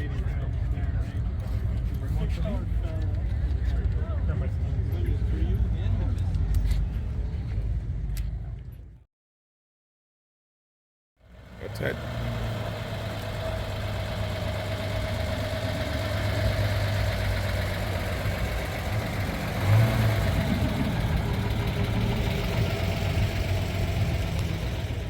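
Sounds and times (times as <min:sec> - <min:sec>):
vehicle engine idling: 0:11.2 - 0:25.0.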